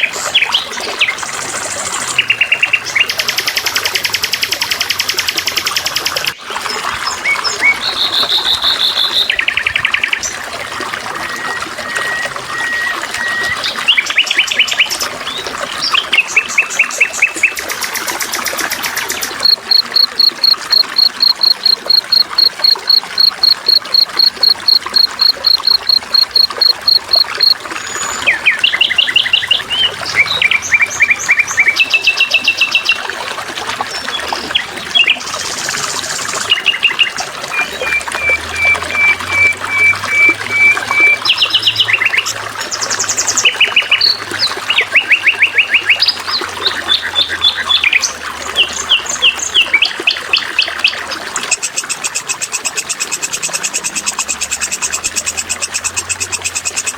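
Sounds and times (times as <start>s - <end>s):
songbirds chirping and trilling: 0.0s - 10.5s, 12.0s - 33.1s
water trickling: 0.0s - 56.9s.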